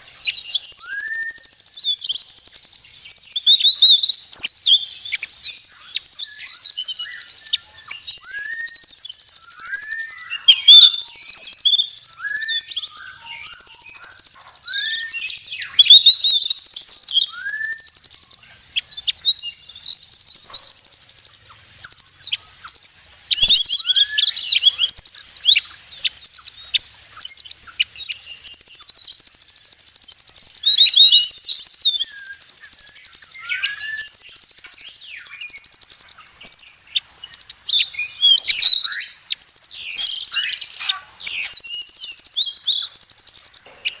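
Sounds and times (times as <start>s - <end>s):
high chattering bird trills: 0.0s - 44.0s
short rising bird whistles: 0.6s - 2.1s, 6.2s - 18.0s, 28.2s - 36.4s.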